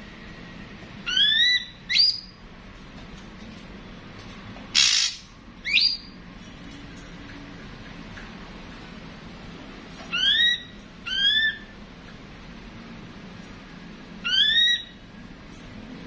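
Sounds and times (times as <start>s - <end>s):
bird whistled notes: 4.8s - 6.2s.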